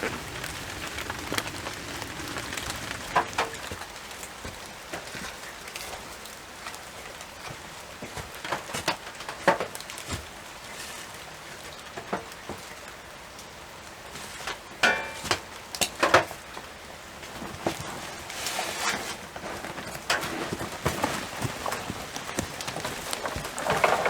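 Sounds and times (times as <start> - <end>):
footsteps crunching dry leaves: 0.0 - 4.8.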